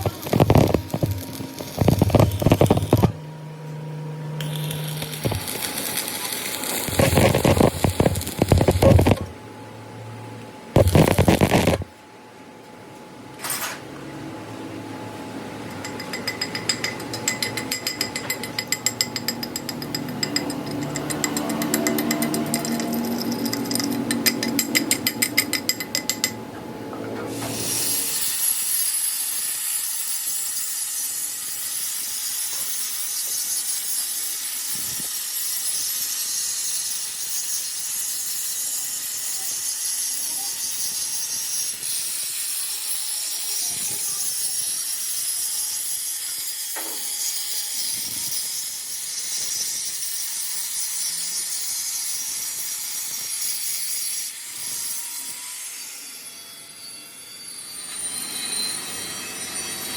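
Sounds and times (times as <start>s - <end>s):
fast mechanical knocks: 0.0s - 3.2s, 6.8s - 9.3s.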